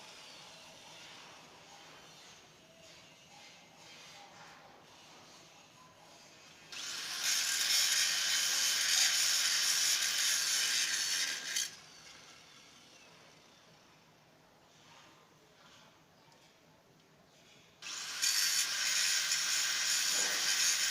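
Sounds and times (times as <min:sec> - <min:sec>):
tool rasping on metal pipe: 0:17.9 - 0:20.9.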